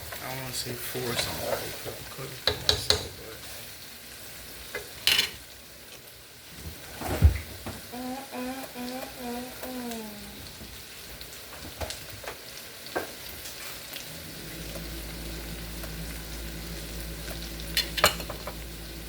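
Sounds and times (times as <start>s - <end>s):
vegetables sizzling in a pan: 0.0s - 19.0s
person humming: 7.9s - 10.5s
steady low hum: 14.0s - 19.0s.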